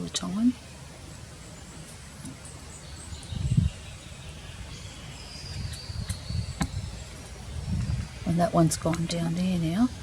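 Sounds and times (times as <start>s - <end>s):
faint high bird chirps: 1.5s - 8.3s
microphone handling rumble: 5.4s - 9.2s.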